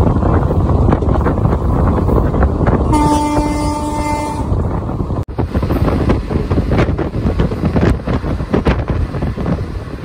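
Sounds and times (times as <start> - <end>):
train coach rattling: 0.0 - 10.0
train wheels rumbling on track: 0.0 - 10.0
wind rushing: 0.0 - 10.0
train horn blast: 2.8 - 4.6.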